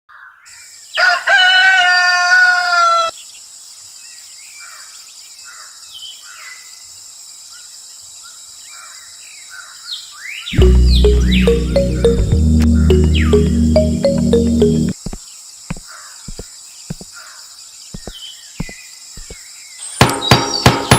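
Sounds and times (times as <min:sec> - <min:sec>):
rooster crowing: 0:01.0 - 0:03.1
small birds chirping faintly: 0:03.0 - 0:20.9.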